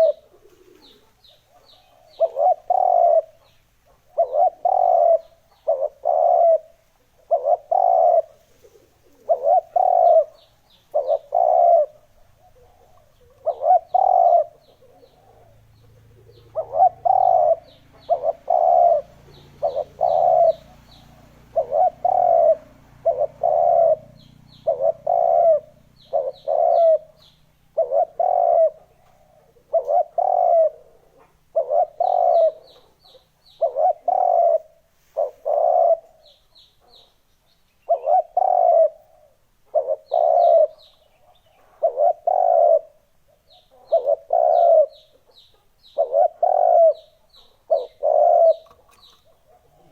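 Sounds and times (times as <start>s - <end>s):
dove cooing: 0.0s - 37.2s, 37.8s - 49.9s.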